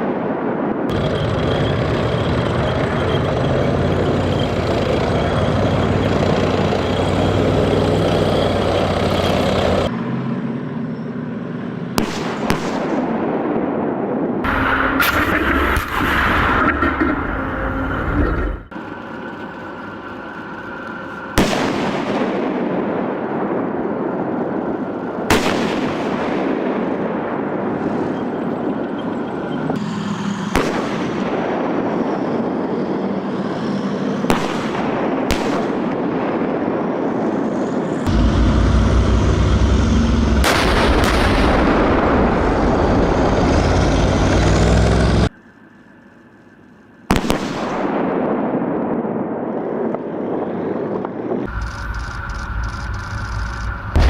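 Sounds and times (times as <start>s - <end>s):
tank gun blasts: 11.9s - 16.6s, 21.3s - 29.6s, 30.5s - 33.0s, 34.1s - 39.3s, 40.2s - 43.8s, 47.1s - 50.4s.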